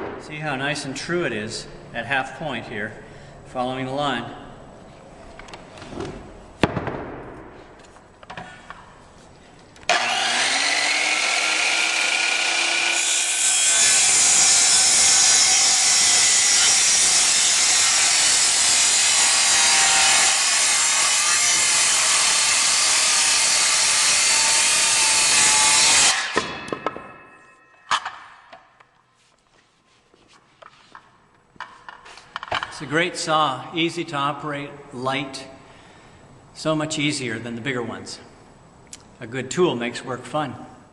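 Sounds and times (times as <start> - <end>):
circular saw cutting wood: 9.9 - 26.4.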